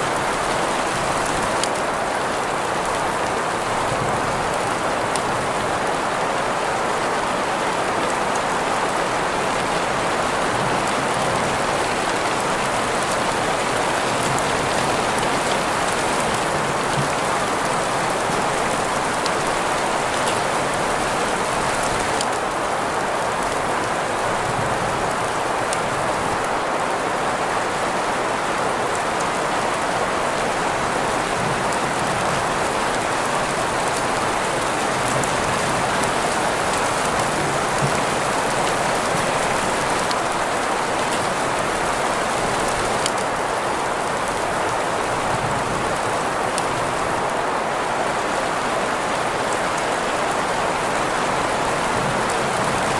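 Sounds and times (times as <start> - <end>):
steady rain hiss: 0.0 - 52.9.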